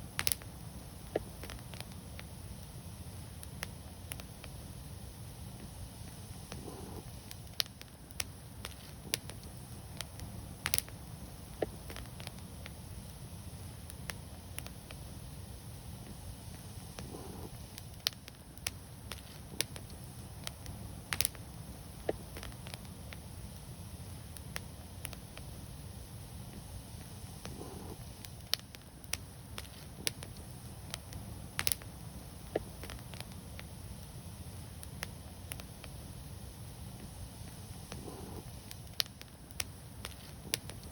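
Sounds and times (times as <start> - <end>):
low rumble of burning: 0.0 - 40.9
wood fire crackling: 0.0 - 40.9.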